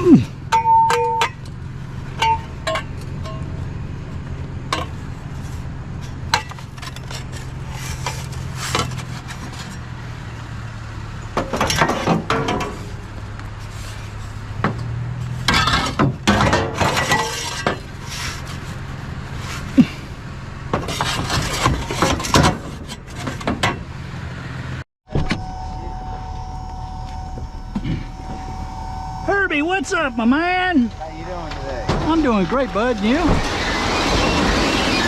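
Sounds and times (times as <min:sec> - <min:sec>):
scrap metal clanking: 0:04.7 - 0:09.9, 0:11.4 - 0:13.0, 0:13.6 - 0:19.9, 0:20.7 - 0:23.9
steady low hum: 0:25.1 - 0:33.7.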